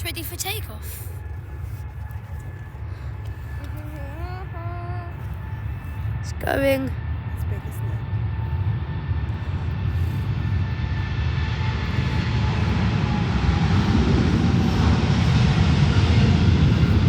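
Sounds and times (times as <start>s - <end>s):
jet engines at takeoff: 0.0s - 17.0s.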